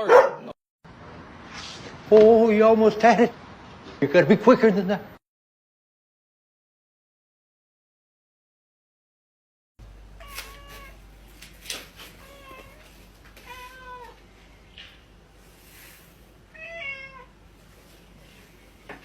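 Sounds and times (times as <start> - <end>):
cat meowing: 10.2 - 11.0, 12.2 - 14.2, 16.5 - 17.3.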